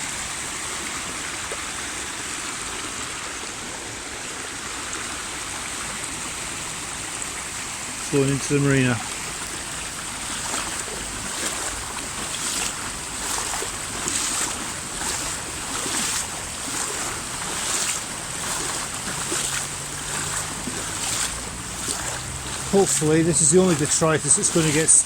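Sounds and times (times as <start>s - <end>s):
floodwater rushing: 0.0s - 25.0s
splashes of wading legs: 5.0s - 25.0s.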